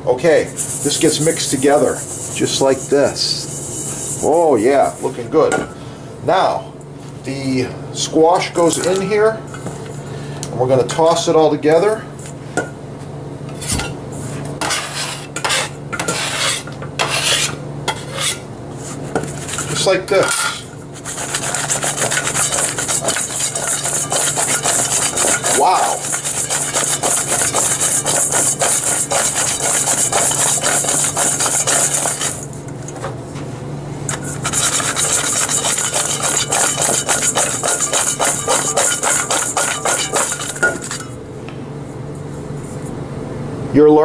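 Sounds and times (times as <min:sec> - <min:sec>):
squash slices scraping in metal bowl: 0:00.2 - 0:05.2, 0:14.6 - 0:32.8, 0:34.1 - 0:41.2.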